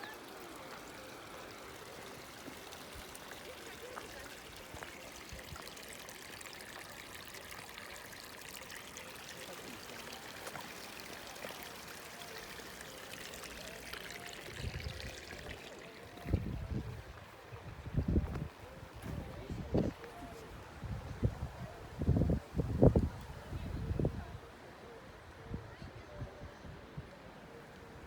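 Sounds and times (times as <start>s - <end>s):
water splashing: 0.0s - 17.4s.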